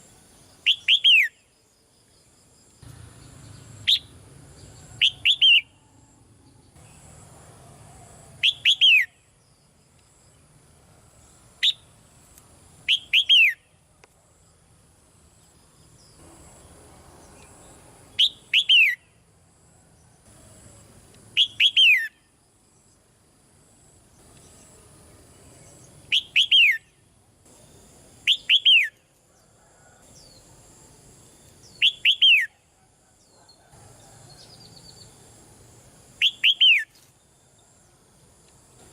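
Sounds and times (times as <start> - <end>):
bird calling whistled notes: 0.6 - 1.4, 5.0 - 5.8, 8.4 - 9.2, 12.9 - 13.7, 18.2 - 19.1, 21.4 - 22.2, 26.1 - 27.0, 28.3 - 29.0, 31.7 - 32.6, 36.2 - 37.0.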